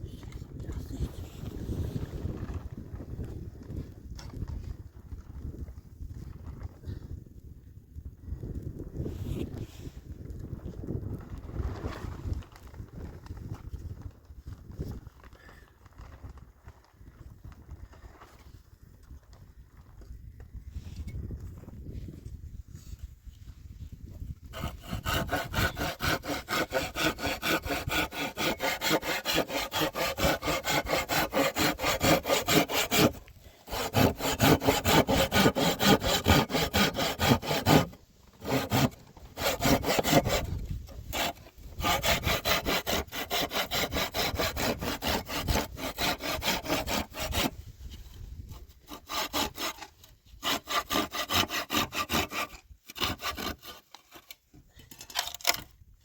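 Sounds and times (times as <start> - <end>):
rhythmic rasping strokes: 24.6 - 40.5.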